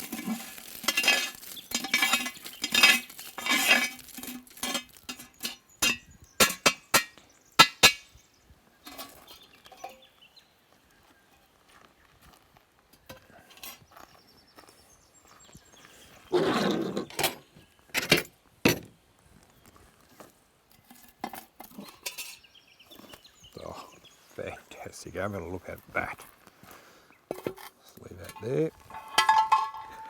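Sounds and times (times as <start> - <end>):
handling sounds: 0.0 - 7.1, 27.3 - 30.0
metal utensils scraping cookware: 0.0 - 8.0, 21.1 - 22.5, 27.3 - 30.0
utensils clinking: 0.0 - 8.0, 28.2 - 30.0.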